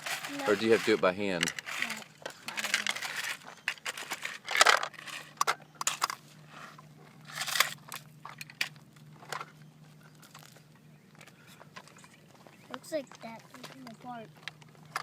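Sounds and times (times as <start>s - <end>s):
gravel crunching and rattling: 0.0s - 15.0s.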